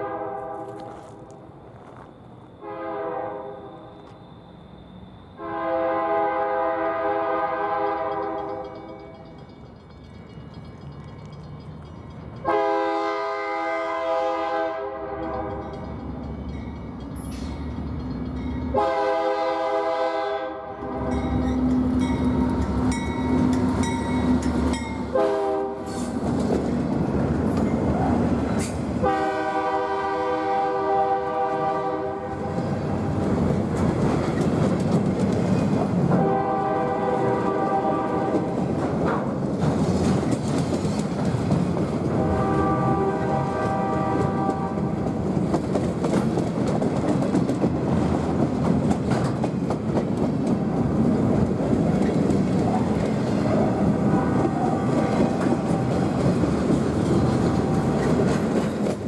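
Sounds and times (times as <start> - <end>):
locomotive horn blasts: 0.0 - 1.0, 2.6 - 4.0, 5.4 - 8.6, 12.4 - 15.4, 18.7 - 21.7, 24.6 - 26.0, 29.0 - 32.4, 36.2 - 38.6, 42.1 - 45.0, 53.6 - 56.2
train engines and wheels rumbling: 0.0 - 59.0.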